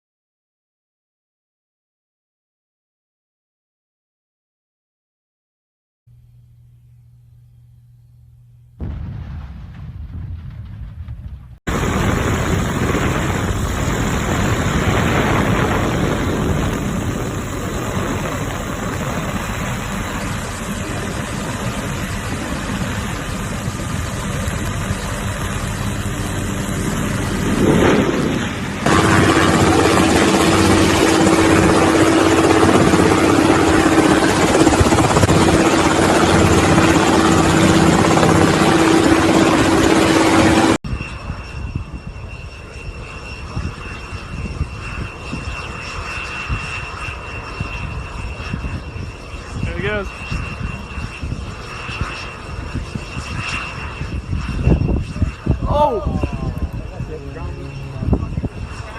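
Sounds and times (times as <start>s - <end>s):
aircraft engine roar: 10.2s - 58.9s
steady droning tone: 54.6s - 58.9s.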